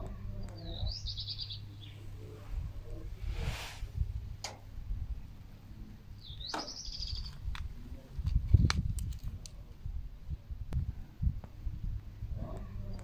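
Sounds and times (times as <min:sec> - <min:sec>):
songbirds calling: 0:00.0 - 0:03.1, 0:04.2 - 0:08.1
uneven low rumble: 0:00.0 - 0:13.0.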